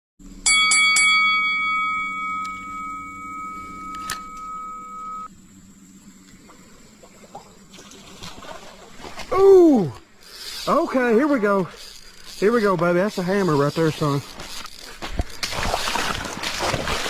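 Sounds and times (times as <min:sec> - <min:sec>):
low hum: 0:00.2 - 0:17.0
bell-like ringing tone: 0:00.4 - 0:05.3.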